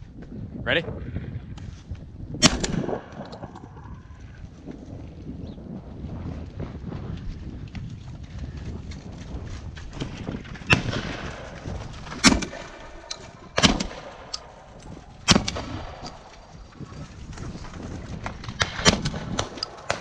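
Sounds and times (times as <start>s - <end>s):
shotgun shots with echo: 2.4s - 3.5s, 10.7s - 16.3s, 18.6s - 20.0s.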